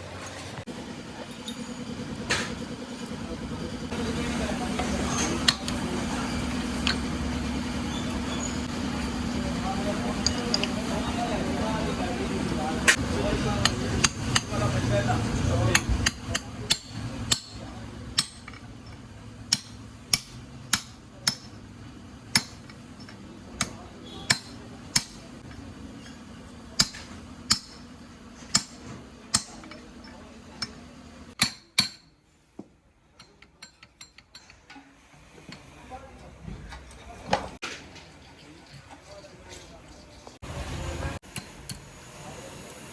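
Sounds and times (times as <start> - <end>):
hammer striking metal: 12.9 - 14.8, 15.7 - 18.7, 19.4 - 21.7, 22.3 - 25.2, 26.8 - 29.8, 31.4 - 32.2.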